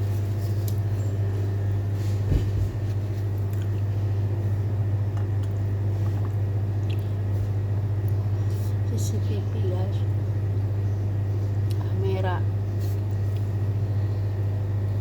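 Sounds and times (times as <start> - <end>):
steady low hum: 0.0 - 15.0
dull thump: 2.2 - 2.9.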